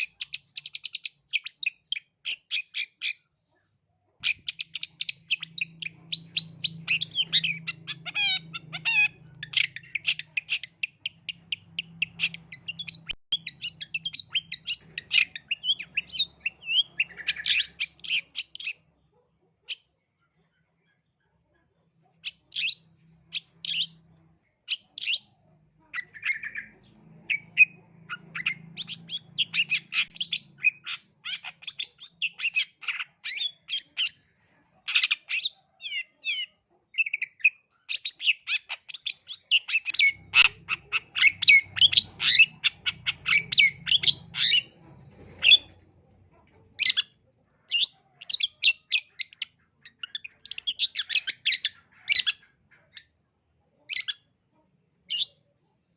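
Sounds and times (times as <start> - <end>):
bird singing chattering song: 0.0 - 3.3, 4.2 - 21.0, 22.0 - 55.9.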